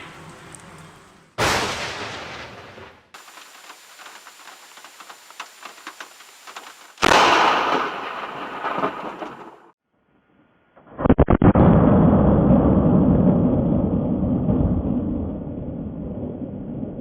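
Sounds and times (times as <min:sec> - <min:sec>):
rain patter with crackles: 0:00.0 - 0:01.4, 0:03.2 - 0:07.1
thunderclaps: 0:00.0 - 0:09.8, 0:11.5 - 0:17.0.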